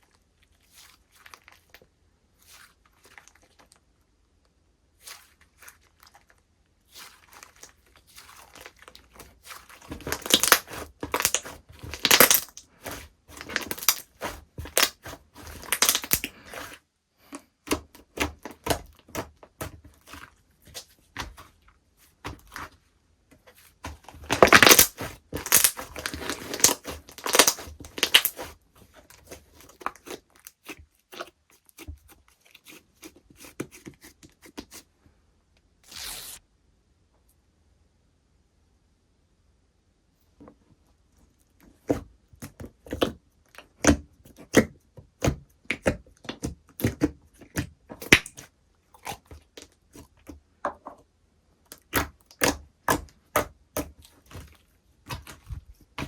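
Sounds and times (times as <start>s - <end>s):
slime crackling and popping: 9.6s - 16.8s, 24.0s - 28.6s, 46.8s - 49.7s.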